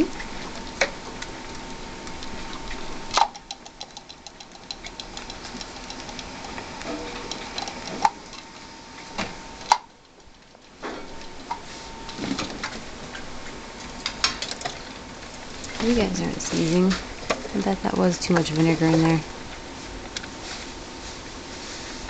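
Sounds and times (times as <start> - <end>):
rats clicking in cage: 2.0 - 8.6.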